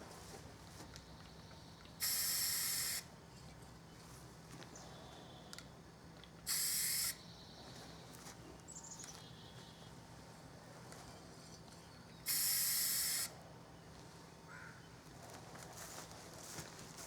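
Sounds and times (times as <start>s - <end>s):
spray paint can spraying: 2.0s - 3.1s, 6.4s - 7.2s, 12.3s - 13.3s.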